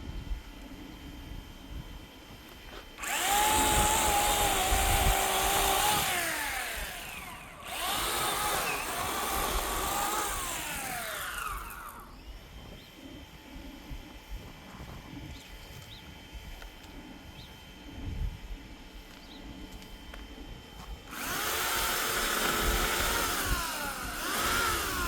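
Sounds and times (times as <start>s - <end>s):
electric chainsaw running: 2.7s - 14.0s, 20.8s - 25.0s.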